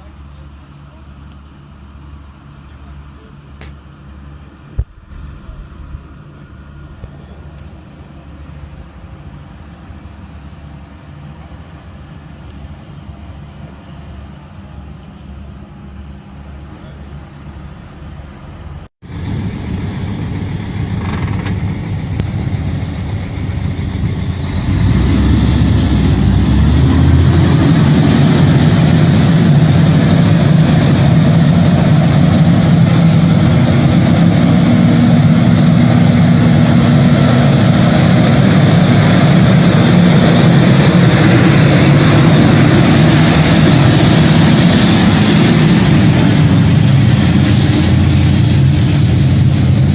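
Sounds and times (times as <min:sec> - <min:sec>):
tractor engine running under load: 0:19.1 - 0:49.9.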